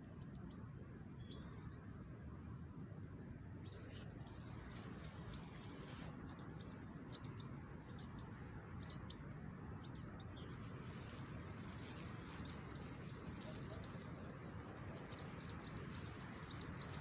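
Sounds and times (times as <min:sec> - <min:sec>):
small bird chirping: 0:03.6 - 0:17.0.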